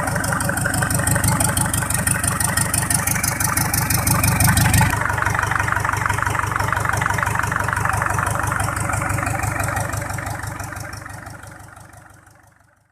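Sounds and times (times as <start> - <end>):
diesel engine idling clatter: 0.0 - 12.9.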